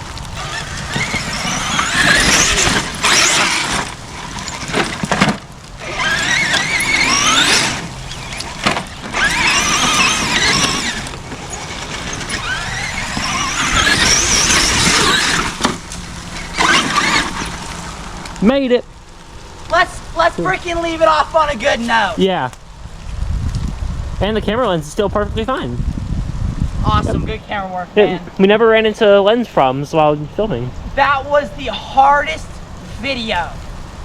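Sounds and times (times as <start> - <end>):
toy truck electric motor whining: 0.2 - 18.4.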